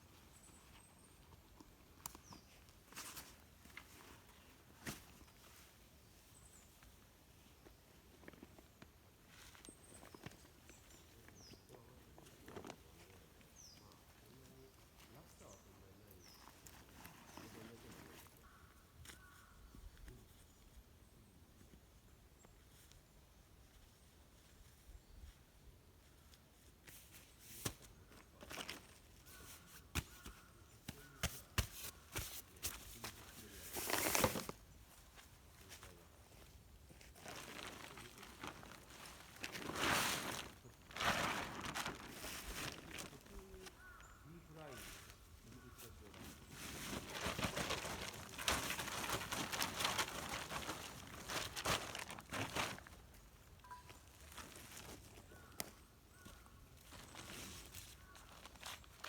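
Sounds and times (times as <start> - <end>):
rustling crinkle: 26.9 - 44.2, 44.8 - 59.0.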